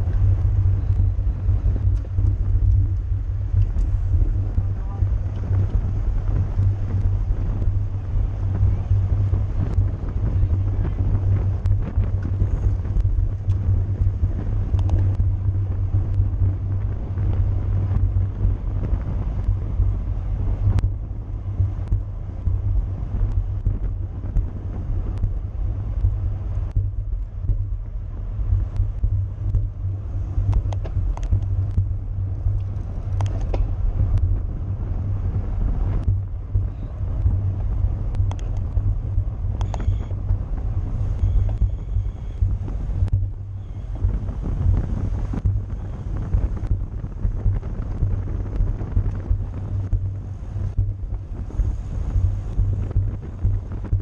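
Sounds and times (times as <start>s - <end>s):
road and tyre noise: 0.0s - 54.0s
wind buffeting microphone: 0.0s - 54.0s
bicycle clicks: 30.4s - 34.4s, 38.1s - 40.2s.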